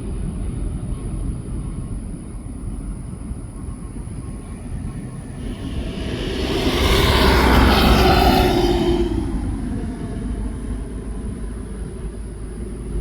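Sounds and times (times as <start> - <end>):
jet engines passing close by: 3.9 - 13.0.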